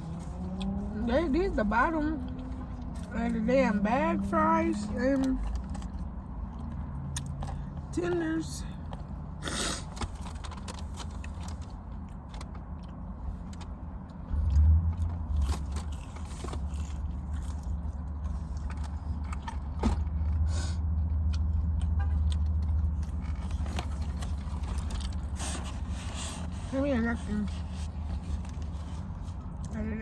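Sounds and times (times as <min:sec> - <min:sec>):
food and packaging clicks and scrapes: 0:05.2 - 0:07.8, 0:09.7 - 0:20.5, 0:21.1 - 0:29.8
chewing: 0:08.9 - 0:20.4.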